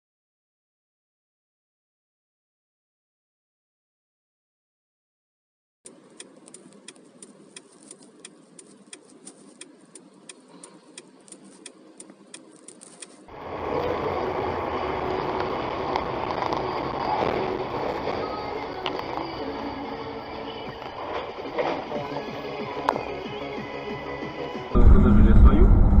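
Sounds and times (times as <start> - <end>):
light even ticking: 5.9 - 13.3
road and engine noise: 5.9 - 22.6
low engine hum: 24.8 - 26.0.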